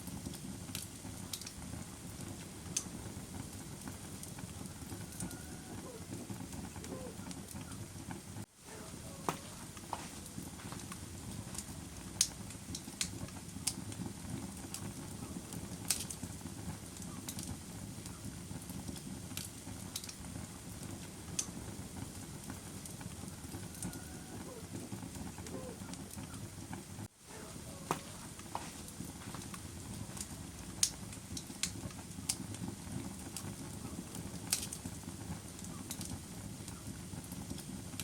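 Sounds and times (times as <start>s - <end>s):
fire crackling: 0.0s - 38.0s
sharp pops and snaps: 0.2s - 1.6s, 9.3s - 14.0s, 15.8s - 16.2s, 17.2s - 20.2s, 27.8s - 32.6s, 34.5s - 34.9s, 35.9s - 36.2s.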